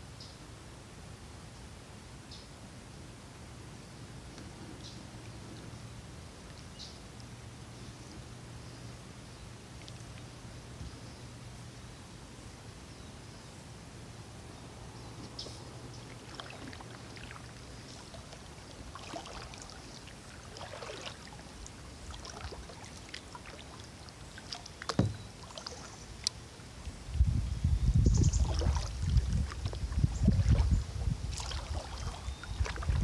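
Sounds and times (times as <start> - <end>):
kayak paddle dipping into water: 15.1 - 27.1, 28.2 - 33.0
sharp knock: 25.0 - 25.2.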